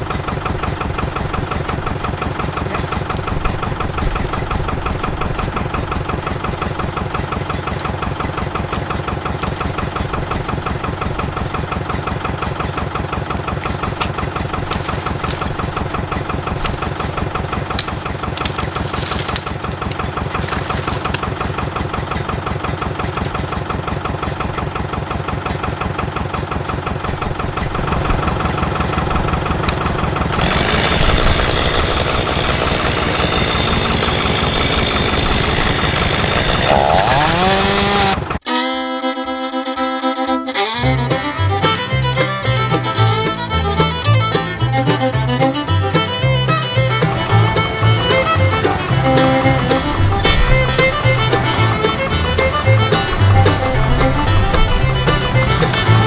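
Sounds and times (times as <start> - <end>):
engine idling with knocking: 0.0 - 38.4, 41.0 - 56.0
chainsaw at full speed: 30.1 - 38.4, 47.0 - 56.0.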